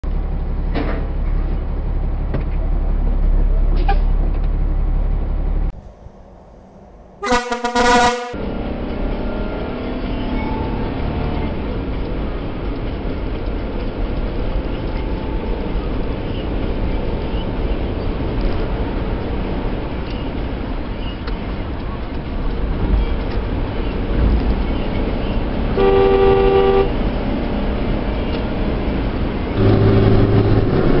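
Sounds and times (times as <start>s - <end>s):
truck engine and road noise: 0.0s - 31.0s
stuttering horn blast: 7.2s - 8.4s, 25.8s - 27.0s.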